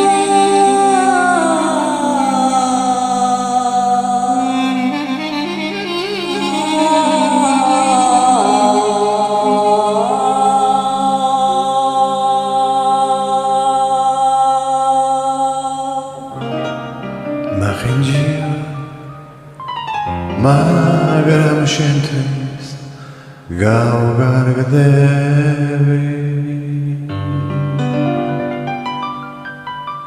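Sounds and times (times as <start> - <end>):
sustained accompaniment: 0.0 - 23.5.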